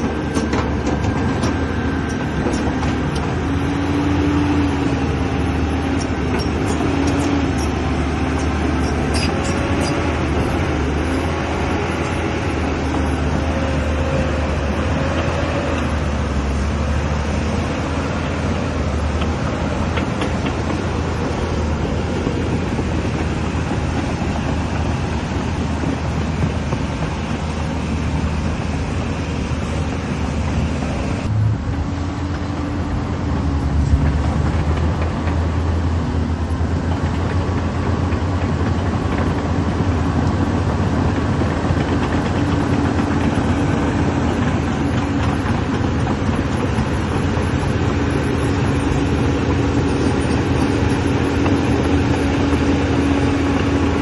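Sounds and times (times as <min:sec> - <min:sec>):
diesel engine running: 0:00.0 - 0:54.0
steady whine: 0:39.1 - 0:54.0.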